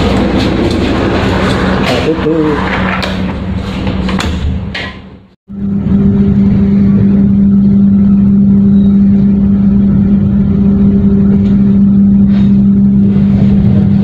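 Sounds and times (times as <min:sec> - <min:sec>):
passenger train hum and rumble: 0:00.0 - 0:04.1.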